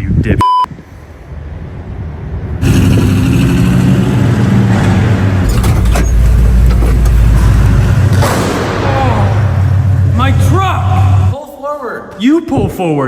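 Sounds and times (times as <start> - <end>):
deep low rumble: 1.6 - 11.4
truck engine revving: 2.5 - 11.4.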